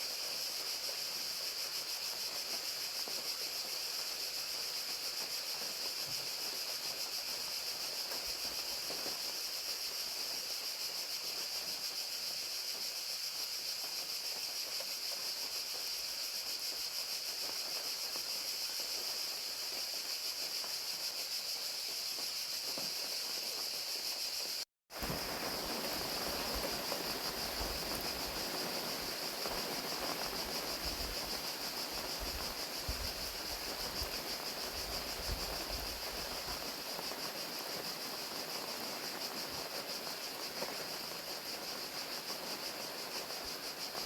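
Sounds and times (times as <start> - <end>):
crickets chirping: 0.0 - 44.0
rain hiss: 0.0 - 44.0.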